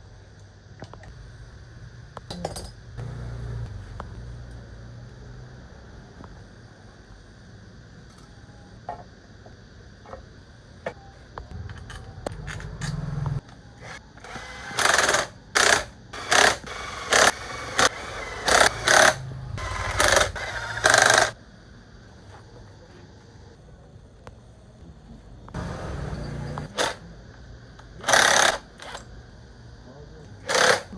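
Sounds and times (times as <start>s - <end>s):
power tool bursts: 12.4s - 21.4s.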